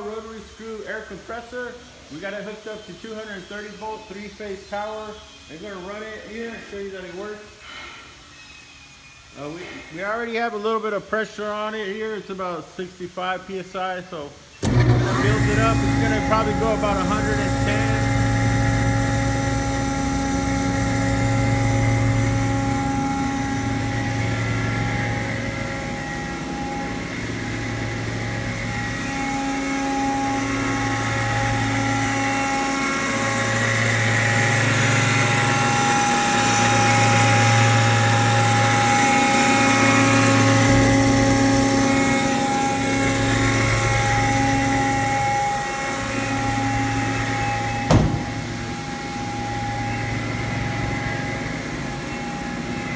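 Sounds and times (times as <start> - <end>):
air compressor running: 14.6 - 52.9.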